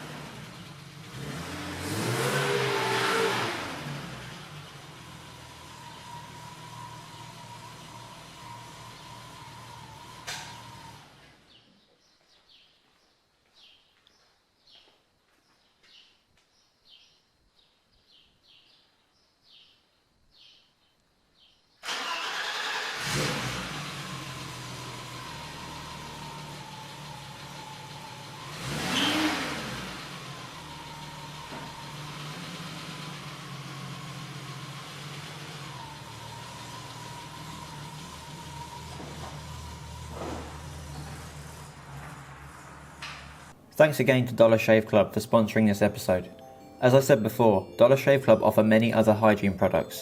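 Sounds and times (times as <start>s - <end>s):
car engine starting and running: 0.0s - 11.6s, 21.8s - 46.3s.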